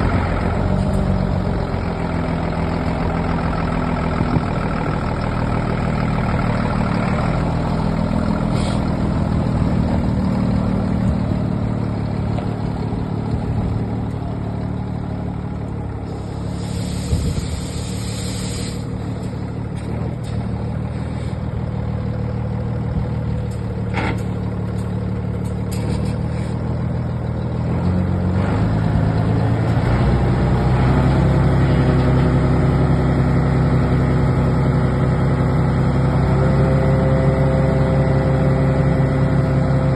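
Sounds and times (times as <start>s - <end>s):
diesel truck engine idling: 0.0s - 39.9s
short hiss: 8.5s - 8.9s, 16.1s - 18.9s.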